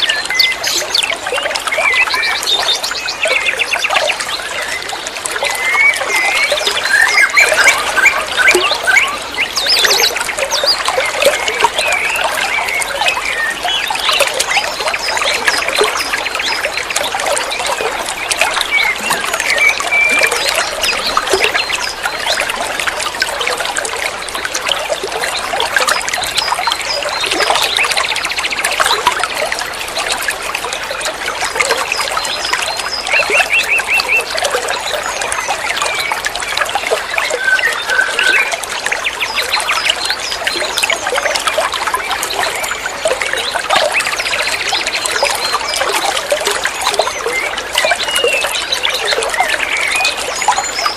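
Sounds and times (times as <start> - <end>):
water trickling: 0.0 - 50.9
small birds chirping: 30.9 - 50.9.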